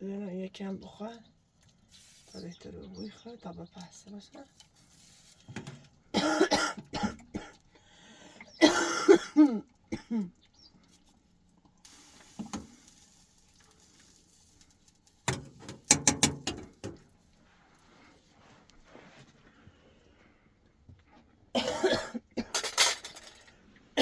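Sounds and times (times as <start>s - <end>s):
woman coughing hard: 6.1s - 7.6s, 8.6s - 10.3s, 21.6s - 22.7s.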